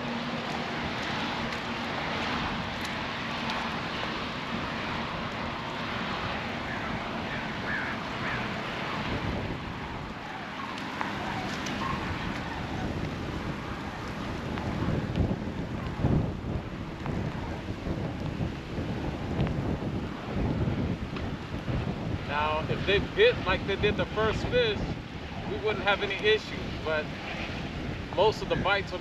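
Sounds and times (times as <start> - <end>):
rain falling: 0.0 - 21.7
wind blowing across microphone: 0.0 - 29.0.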